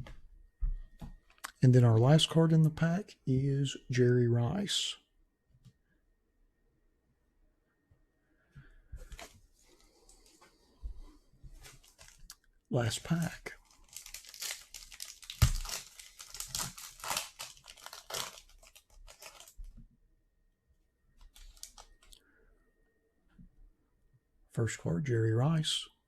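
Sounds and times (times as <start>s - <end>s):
trading cards rustling: 9.0s - 10.4s, 11.5s - 19.6s, 21.2s - 22.1s
plastic wrapper tearing and crinkling: 11.6s - 19.7s, 21.2s - 22.1s.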